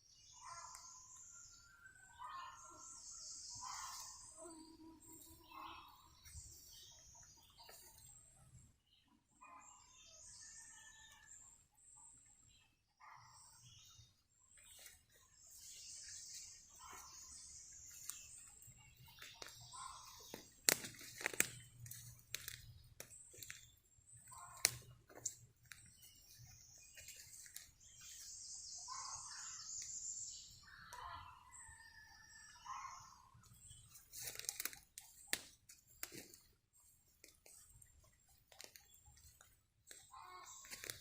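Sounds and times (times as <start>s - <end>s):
footsteps through undergrowth: 5.0s - 8.2s, 14.5s - 29.9s, 33.3s - 41.0s
faint bird chirps: 11.9s - 36.5s
twigs snapping underfoot: 19.2s - 26.0s, 26.9s - 27.7s, 33.9s - 36.5s, 37.2s - 41.0s.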